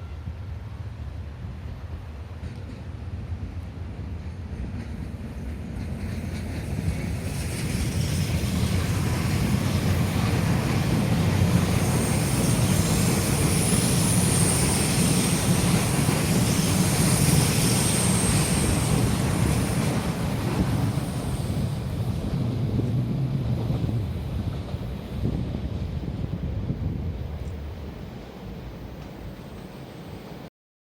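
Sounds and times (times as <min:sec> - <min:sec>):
electric train passing rumble: 0:00.0 - 0:30.5
high-pitched squeal: 0:11.4 - 0:22.0.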